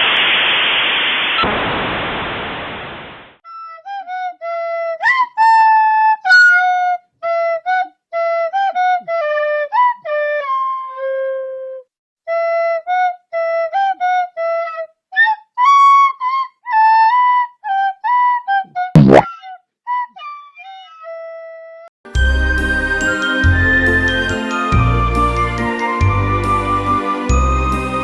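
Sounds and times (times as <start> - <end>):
solo flute-like melody: 7.2 - 14.8
sharp knock: 19.0 - 19.2.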